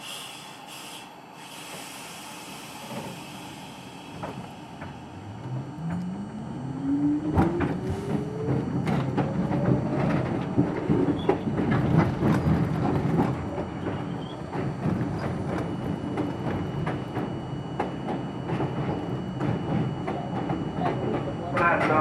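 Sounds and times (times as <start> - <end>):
train wheel rumble: 0.0 - 22.0
rising motor whine: 4.9 - 10.0
clacks over rail joints: 7.3 - 22.0.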